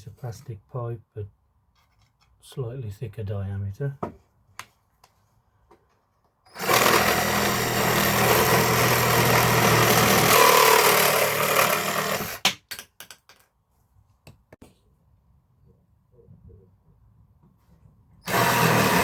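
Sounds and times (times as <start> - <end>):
reciprocating saw cutting plastic pipe: 6.5 - 12.4, 18.3 - 19.0.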